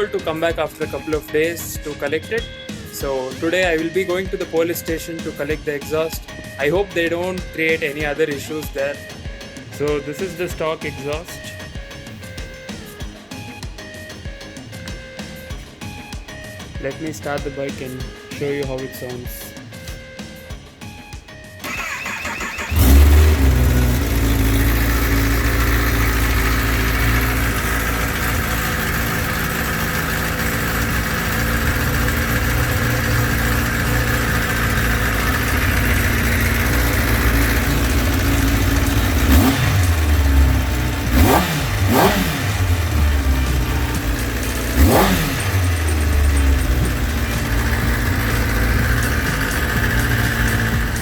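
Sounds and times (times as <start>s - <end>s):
motorcycle engine idling: 0.0s - 51.0s
motorcycle starter cranking: 21.6s - 51.0s
motorcycle throttle revs: 21.6s - 51.0s.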